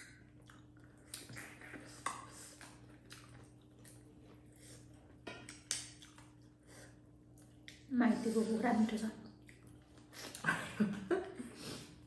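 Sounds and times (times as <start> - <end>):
person chewing food: 0.0 - 7.9, 9.4 - 10.5
faint steady hum: 0.0 - 12.0
wet mouth clicks and smacks: 5.5 - 6.4, 7.3 - 7.9.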